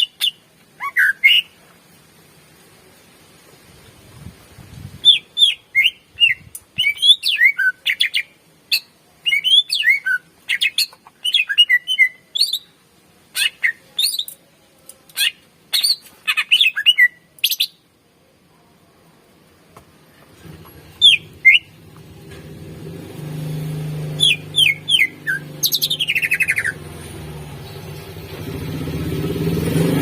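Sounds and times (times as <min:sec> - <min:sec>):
bird singing rapid whistles: 0:00.0 - 0:01.6, 0:05.0 - 0:12.7, 0:15.2 - 0:17.8, 0:21.0 - 0:21.8, 0:24.0 - 0:26.8.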